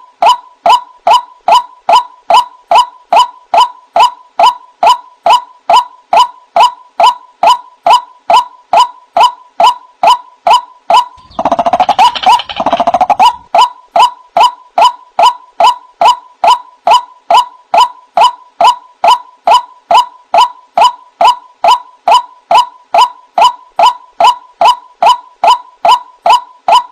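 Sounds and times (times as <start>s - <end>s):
bird chattering burst: 11.2s - 13.5s
waterhen calling: 11.2s - 13.5s.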